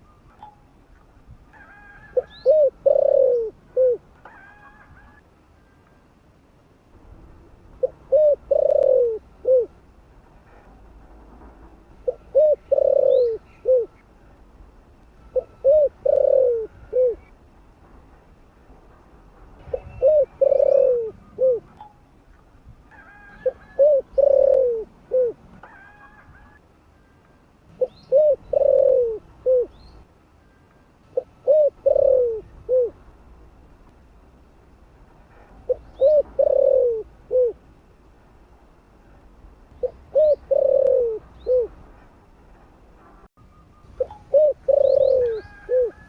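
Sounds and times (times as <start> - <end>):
dove cooing: 1.6 - 5.2, 7.8 - 9.8, 12.0 - 14.0, 15.3 - 17.3, 19.7 - 21.8, 23.0 - 26.6, 27.7 - 29.8, 31.1 - 33.0, 35.3 - 37.6, 39.8 - 41.8, 44.0 - 46.0.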